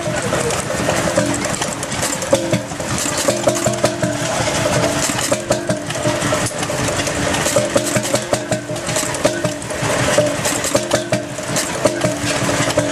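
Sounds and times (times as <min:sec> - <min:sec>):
stationary engine knocking: 0:00.0 - 0:12.9.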